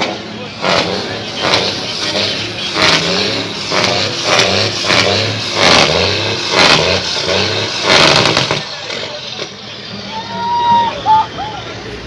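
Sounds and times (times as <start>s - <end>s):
engine revving in blips: 0.0s - 9.6s.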